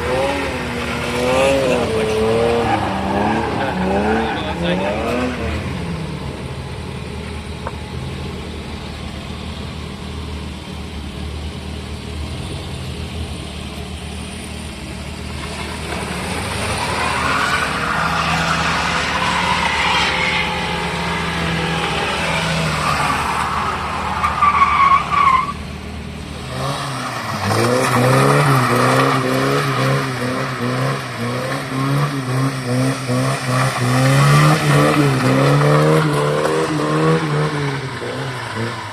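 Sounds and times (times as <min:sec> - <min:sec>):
car engine revving: 0:00.0 - 0:08.9, 0:14.6 - 0:38.9.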